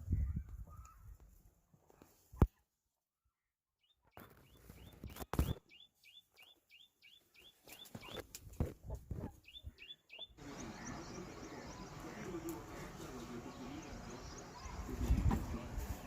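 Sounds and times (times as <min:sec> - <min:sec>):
small bird chirping: 0:03.8 - 0:08.3, 0:09.2 - 0:12.7.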